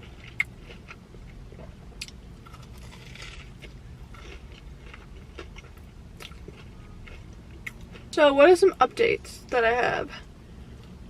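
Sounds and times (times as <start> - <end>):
chewing mouth sounds: 2.0 - 8.0
crisp crunches of fried batter: 2.4 - 7.7.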